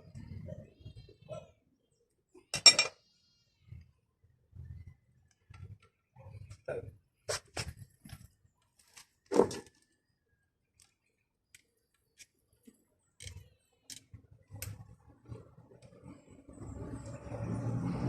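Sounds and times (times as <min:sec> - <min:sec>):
vehicle engine rumble: 0:13.2 - 0:18.0.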